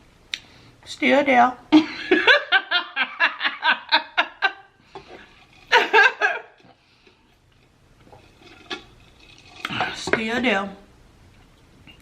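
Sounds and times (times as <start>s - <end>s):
woman laughing: 1.7s - 4.7s, 5.7s - 6.6s.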